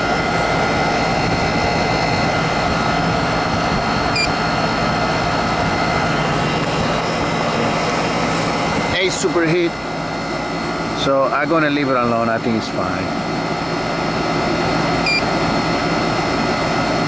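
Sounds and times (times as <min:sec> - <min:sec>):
air conditioner unit running: 0:00.0 - 0:17.0
short high beep: 0:04.1 - 0:04.3, 0:15.0 - 0:15.3.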